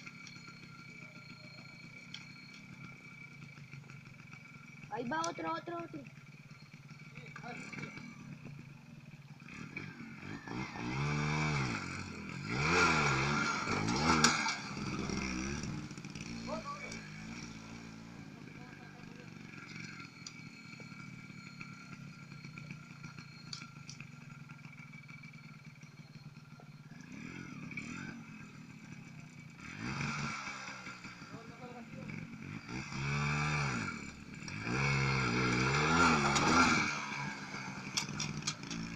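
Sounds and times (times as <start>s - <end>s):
motorcycle engine revving past: 9.4s - 38.9s.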